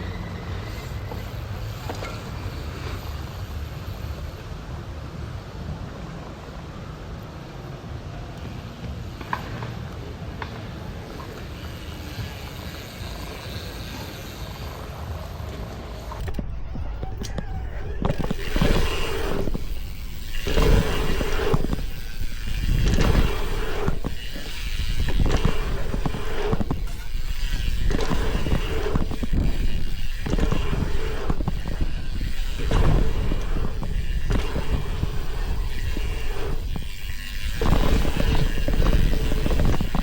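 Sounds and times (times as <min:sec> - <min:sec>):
tyres rolling on dirt: 0:12.0 - 0:40.0
steady buzz: 0:12.9 - 0:40.0
wind rushing over microphone: 0:16.2 - 0:40.0.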